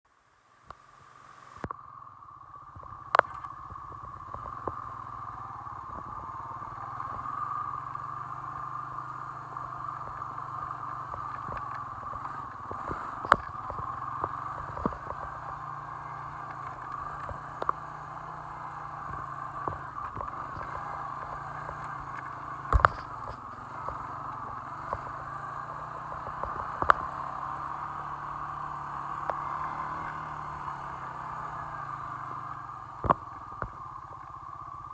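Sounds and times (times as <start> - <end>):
atv engine running: 1.6 - 34.9.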